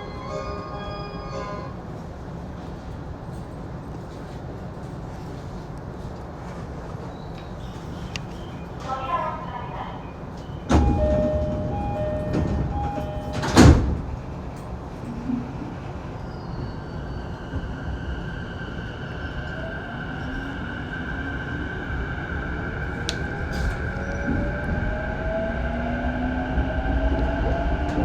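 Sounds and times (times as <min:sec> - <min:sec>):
train door-closing chime: 0:00.0 - 0:01.8, 0:10.4 - 0:14.8
sliding doors shutting with a thud: 0:10.6 - 0:14.3.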